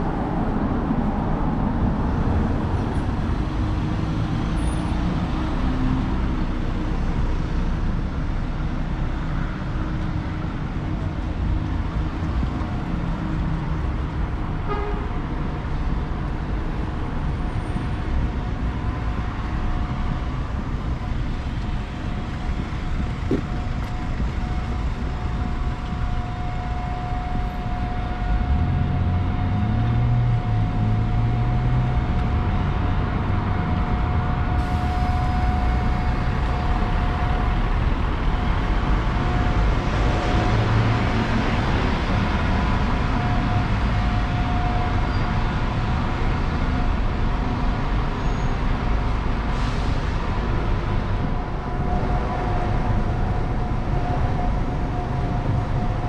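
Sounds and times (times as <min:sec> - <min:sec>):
diesel train rumbling: 0:00.0 - 0:56.0
train whine: 0:16.2 - 0:56.0.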